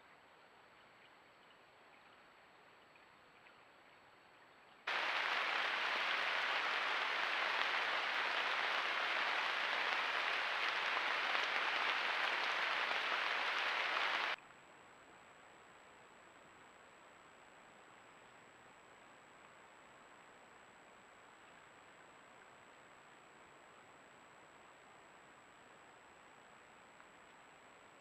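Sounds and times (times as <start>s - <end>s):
faint hiss: 0.0s - 28.0s
loud steady hiss: 4.9s - 14.4s.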